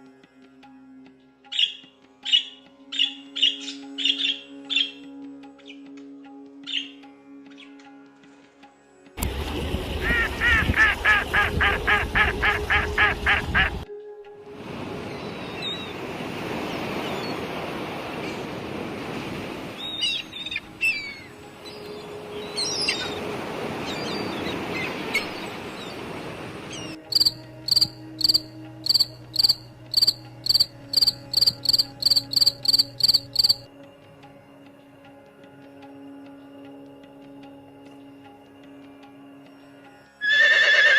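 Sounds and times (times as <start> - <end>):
outdoor ambience hiss: 14.5 - 35.0
bird calls: 19.8 - 33.6
high short bird chirps: 27.1 - 33.6.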